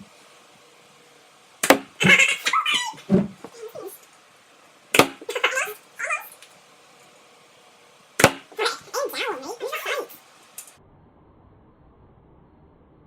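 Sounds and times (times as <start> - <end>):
short high-pitched vocal sounds: 2.0 - 4.0, 5.2 - 6.4, 8.5 - 10.2.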